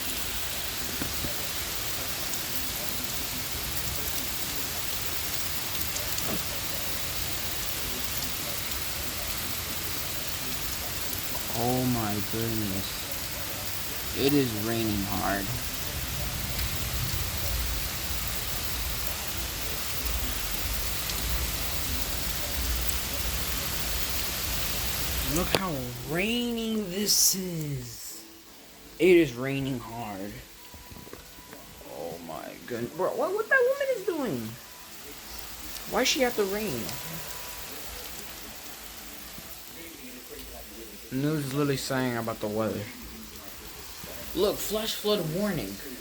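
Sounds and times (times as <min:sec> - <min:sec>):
heavy rain pouring: 0:00.0 - 0:46.0
faint raindrop ticks: 0:00.1 - 0:26.2, 0:34.3 - 0:45.7.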